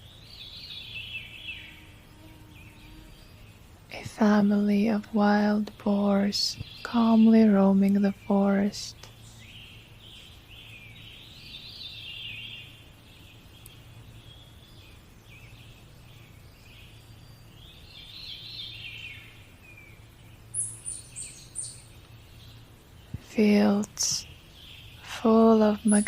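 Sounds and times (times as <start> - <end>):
birds chirping and singing: 0.0 - 26.0
faint low hum: 0.0 - 26.0.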